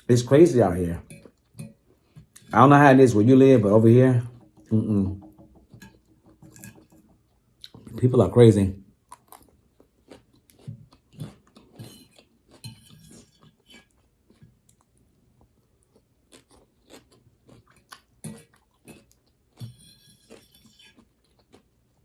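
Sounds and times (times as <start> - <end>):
crunchy chewing of vegetables: 9.0 - 22.0.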